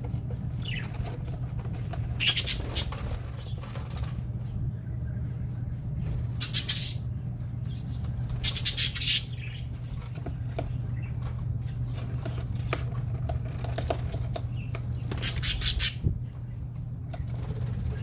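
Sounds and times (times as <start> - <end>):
steady low hum: 0.0 - 18.0
birds fluttering wings: 0.1 - 4.7, 5.9 - 16.3, 17.0 - 18.0
soft bird chirps: 2.1 - 3.7, 4.5 - 12.8.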